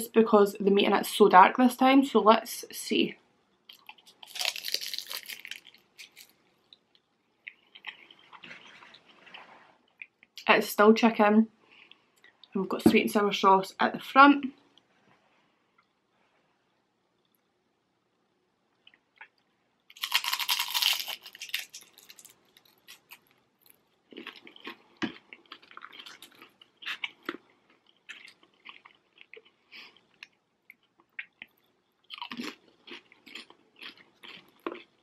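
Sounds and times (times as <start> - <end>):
loud crunch of biting: 3.7 - 6.4, 19.9 - 23.3, 32.1 - 34.9
chewing with crackles: 3.7 - 10.4, 18.8 - 35.0.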